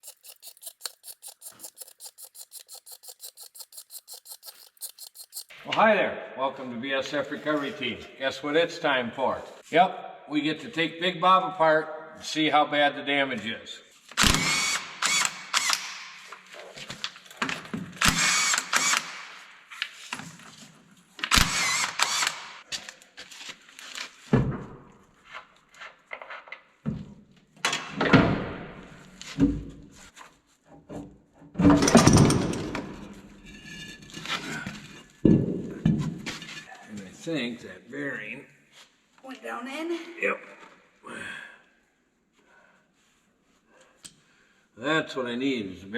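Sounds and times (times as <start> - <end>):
power tool bursts: 14.2 - 16.1, 18.0 - 19.4, 21.3 - 22.6
metal parts knocking and clanking: 31.6 - 33.0.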